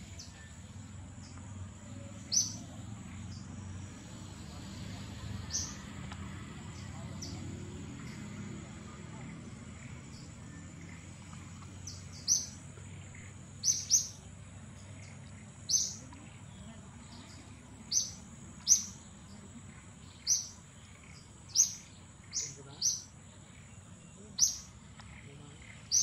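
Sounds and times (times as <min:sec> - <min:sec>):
low background hum: 0:00.0 - 0:26.0
sharp bird chirps: 0:02.2 - 0:06.0, 0:11.7 - 0:16.1, 0:17.8 - 0:19.2, 0:20.0 - 0:24.8.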